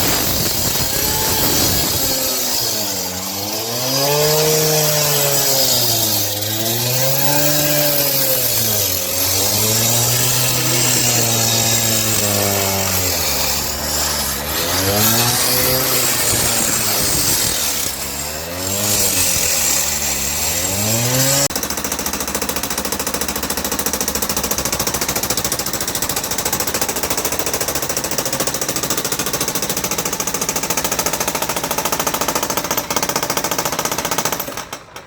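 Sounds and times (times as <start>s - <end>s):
motor drone rising and falling: 0.0s - 5.7s
jackhammer rattling: 0.0s - 35.0s.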